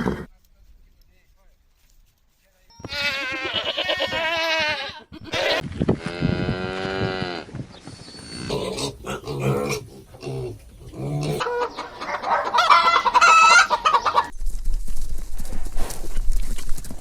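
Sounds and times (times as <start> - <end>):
chickens clucking: 7.9 - 14.4
rooster crowing: 11.4 - 14.3.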